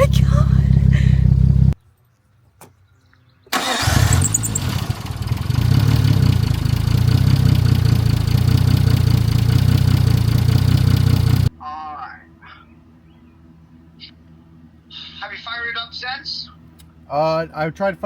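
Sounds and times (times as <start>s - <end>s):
car engine starting and idling: 0.0s - 1.8s, 3.5s - 11.5s.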